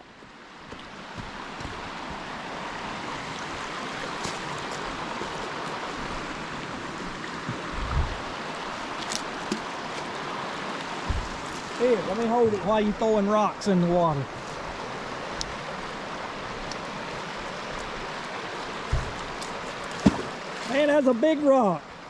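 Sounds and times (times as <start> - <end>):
creek water over rocks: 0.0 - 22.0
low thump: 11.0 - 11.6, 18.9 - 19.3.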